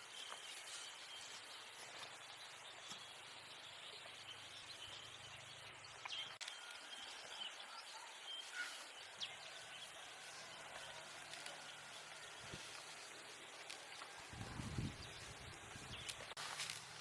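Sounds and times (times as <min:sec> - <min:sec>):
bird chirps: 0:00.0 - 0:12.8.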